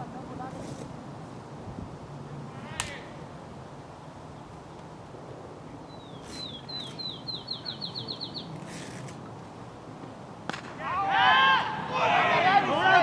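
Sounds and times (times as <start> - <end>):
outdoor background noise: 0.0 - 13.0
songbird calling high notes: 5.9 - 8.5.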